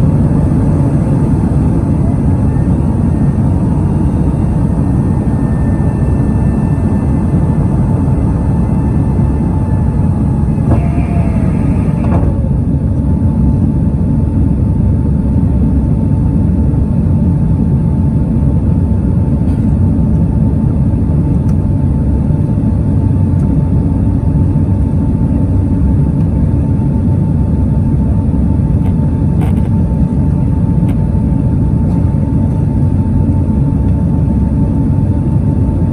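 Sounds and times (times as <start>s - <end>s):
high whine: 0.0s - 16.2s
jet engine cabin rumble: 0.0s - 35.9s.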